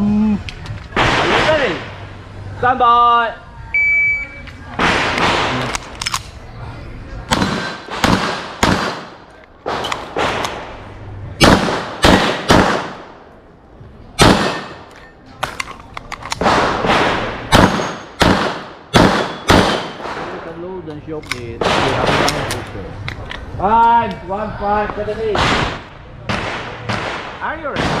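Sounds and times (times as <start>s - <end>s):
pistol shots with echo: 7.3s - 10.7s, 11.4s - 13.2s, 14.2s - 14.9s, 16.3s - 20.5s, 21.6s - 22.6s, 25.3s - 28.0s.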